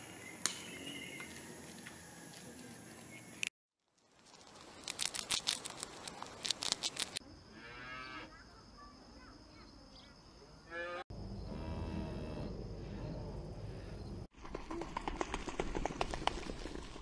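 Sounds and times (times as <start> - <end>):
hamster crunching food: 4.2 - 7.2
cattle mooing: 10.7 - 13.3.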